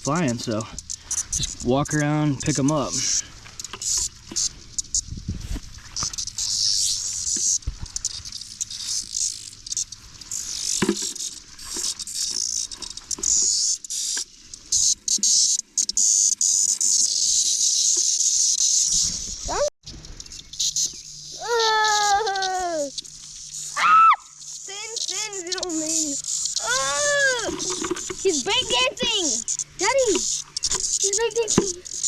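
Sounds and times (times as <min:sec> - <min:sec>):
cicadas buzzing: 0:00.0 - 0:32.0
handling clicks and rustles: 0:27.3 - 0:32.0.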